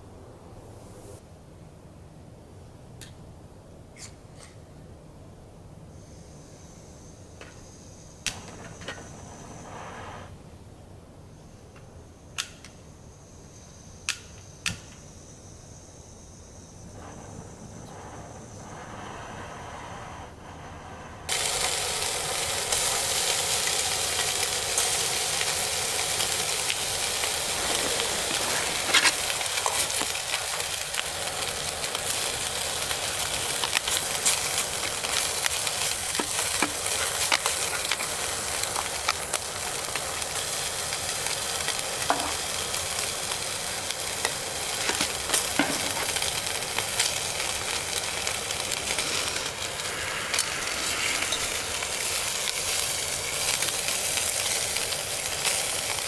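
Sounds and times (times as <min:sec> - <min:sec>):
food sizzling in a pan: 0:15.1 - 0:56.0.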